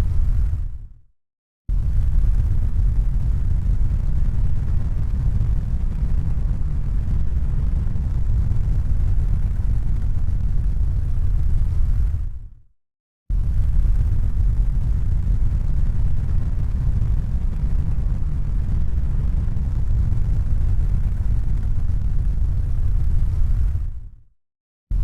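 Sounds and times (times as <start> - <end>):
low rumbling noise: 13.3 - 24.1.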